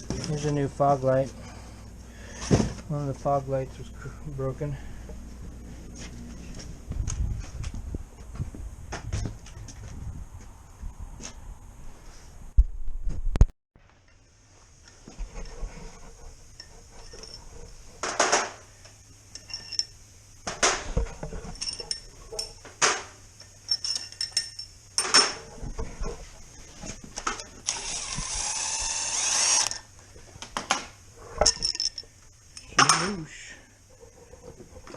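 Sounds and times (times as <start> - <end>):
metal tools clinking: 0.0 - 0.7, 16.5 - 17.6, 19.3 - 20.0, 21.4 - 22.6, 23.4 - 25.5, 31.4 - 33.2.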